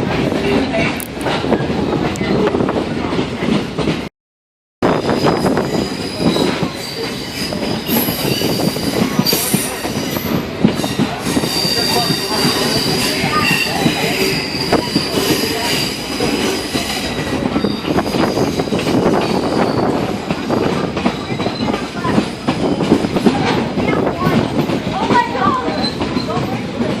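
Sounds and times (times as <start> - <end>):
train rumble and clatter: 0.0 - 4.1, 4.8 - 27.0
high wheel squeal: 4.9 - 20.2.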